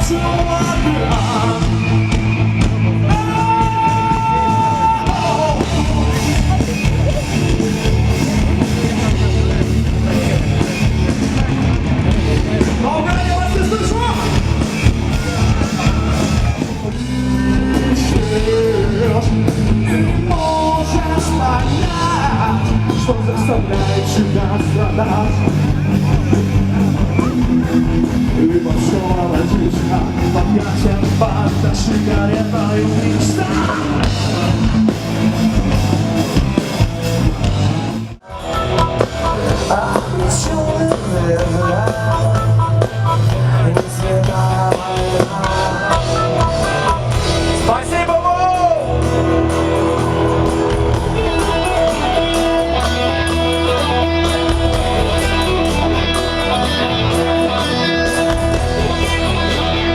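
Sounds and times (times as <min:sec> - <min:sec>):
live rock band playing: 0:00.0 - 0:59.9
person singing: 0:03.0 - 0:08.4, 0:15.5 - 0:26.2, 0:38.2 - 0:47.0.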